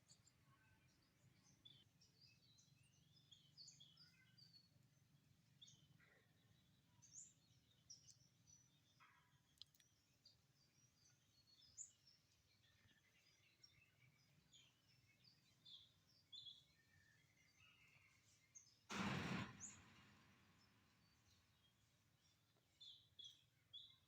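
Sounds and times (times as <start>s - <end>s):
birds chirping: 0.0s - 24.0s
loud rustle or bump: 18.9s - 21.0s.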